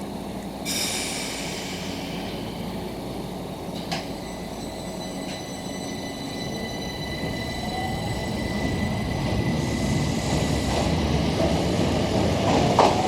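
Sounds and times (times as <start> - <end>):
electric train rumbling: 0.0 - 13.0
air hiss: 0.6 - 3.1.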